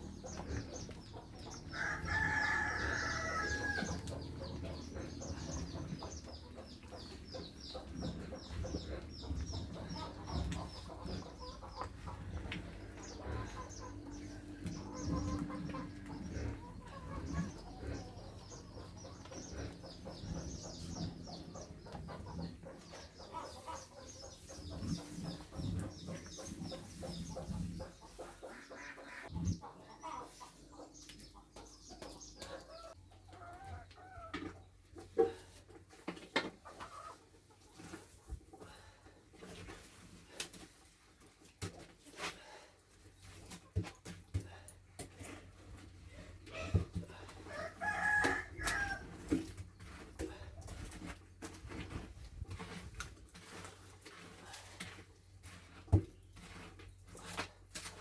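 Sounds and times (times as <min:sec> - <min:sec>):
hens clucking: 0:00.0 - 0:40.5, 0:43.4 - 0:58.0
rooster crowing: 0:01.7 - 0:04.0, 0:47.5 - 0:49.0.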